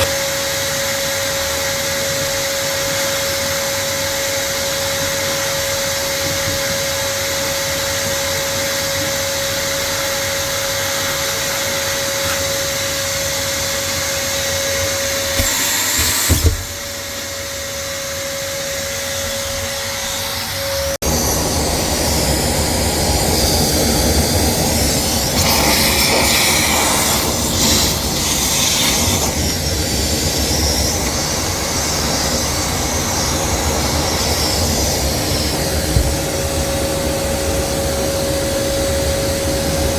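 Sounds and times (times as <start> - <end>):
wet vacuum running: 0.0 - 39.9
knocks: 35.9 - 36.3.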